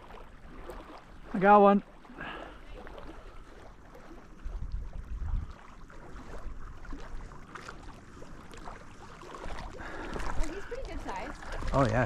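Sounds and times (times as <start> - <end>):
faint lapping water: 0.0 - 12.0
wind rumbling on microphone: 2.8 - 12.0.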